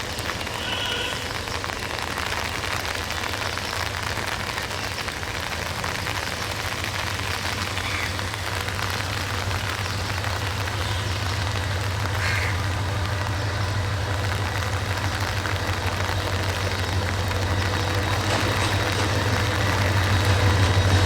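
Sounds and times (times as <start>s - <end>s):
steady rain hiss: 0.0s - 21.0s
diesel locomotive engine humming: 6.6s - 21.0s.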